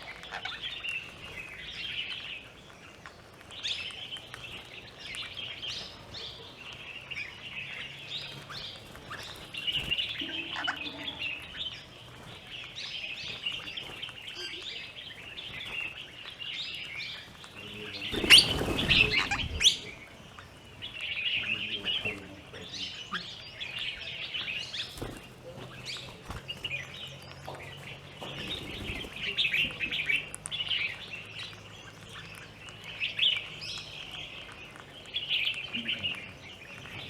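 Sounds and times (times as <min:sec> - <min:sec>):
high bird chirps: 0:03.6 - 0:37.0
loud noisy rustling: 0:08.0 - 0:20.8, 0:23.8 - 0:30.1.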